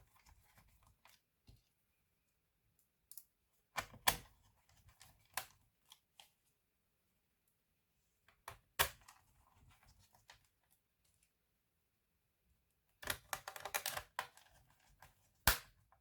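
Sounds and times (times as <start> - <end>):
laptop parts clicking: 13.0 - 14.2.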